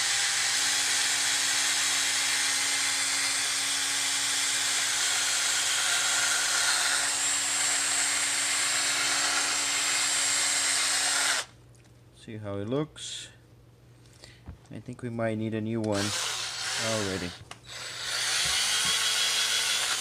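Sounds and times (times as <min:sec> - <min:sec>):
electric drill whine: 0:00.0 - 0:11.5, 0:16.0 - 0:20.0.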